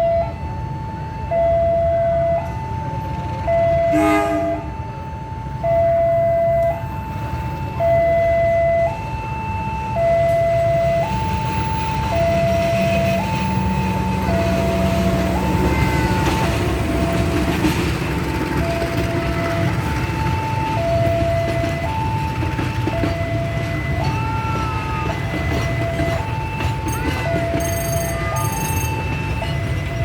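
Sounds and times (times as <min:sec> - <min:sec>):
level crossing two-tone alarm: 0:01.2 - 0:04.8, 0:05.6 - 0:30.0
short horn blast: 0:03.9 - 0:04.7.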